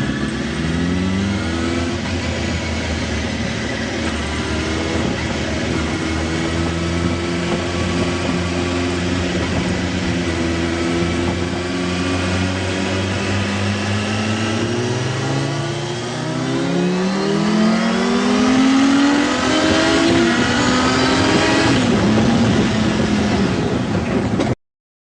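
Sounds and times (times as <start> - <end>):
engine speeding up: 0.0 - 24.6.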